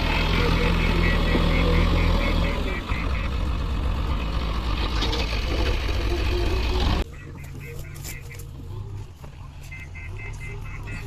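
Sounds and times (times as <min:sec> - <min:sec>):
heavy diesel machinery running: 0:00.0 - 0:09.0.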